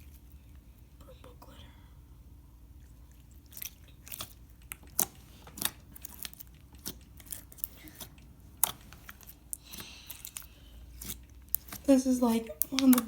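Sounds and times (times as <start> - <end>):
slime squelching with wet pops: 2.6 - 13.0.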